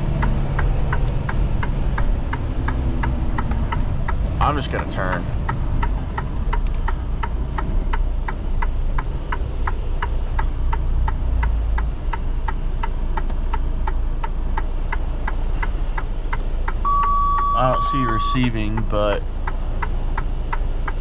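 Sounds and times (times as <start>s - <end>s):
diesel engine rumble: 0.0s - 21.0s
turn signal ticking: 0.0s - 21.0s.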